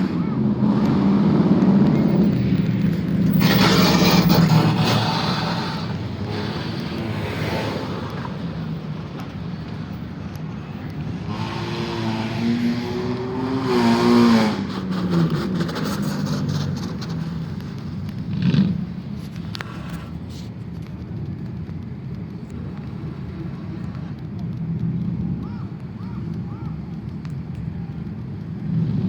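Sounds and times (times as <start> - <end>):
car engines running: 0.0 - 29.0
car engine revving past: 11.2 - 17.6.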